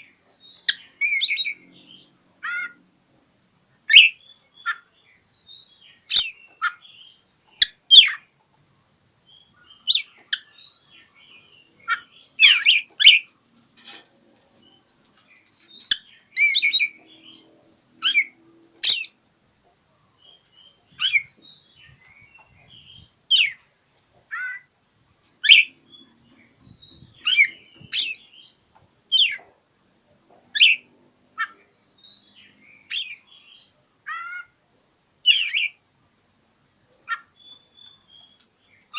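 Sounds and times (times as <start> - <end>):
bird singing sharp phrases: 0.0 - 2.8, 3.8 - 13.3, 14.6 - 19.2, 20.0 - 23.7, 25.4 - 29.5, 30.5 - 34.5, 35.2 - 35.8, 37.0 - 38.9
soft bird chattering: 9.7 - 13.3.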